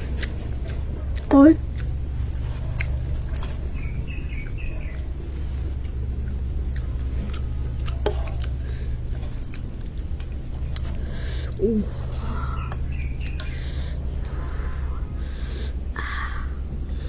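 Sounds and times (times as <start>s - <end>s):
low rumble: 0.0s - 17.0s
bird chirps: 3.4s - 5.8s, 11.0s - 14.8s.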